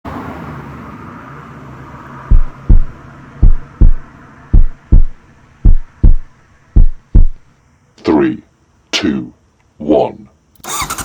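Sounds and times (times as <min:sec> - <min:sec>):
hiss and low hum: 0:00.4 - 0:10.6
heartbeat thumps: 0:02.3 - 0:07.5.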